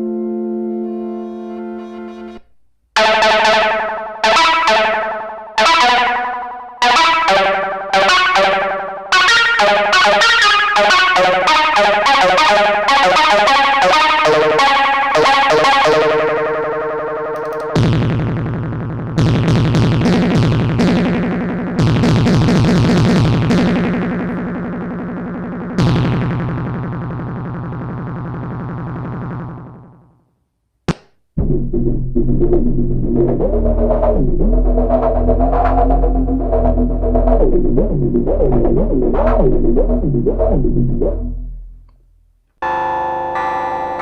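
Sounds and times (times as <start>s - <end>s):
synthesizer notes: 0.0s - 28.0s, 31.4s - 41.7s.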